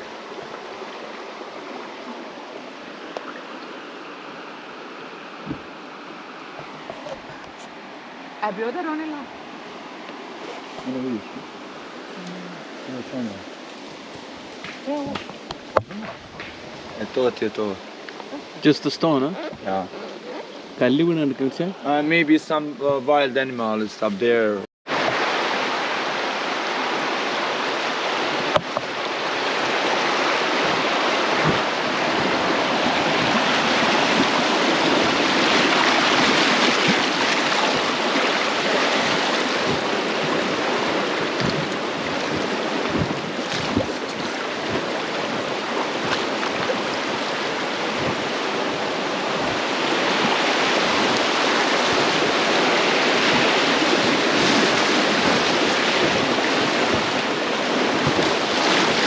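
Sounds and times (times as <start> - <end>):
river water rushing: 0.0 - 22.7, 24.9 - 59.0
low thumps: 39.6 - 45.4.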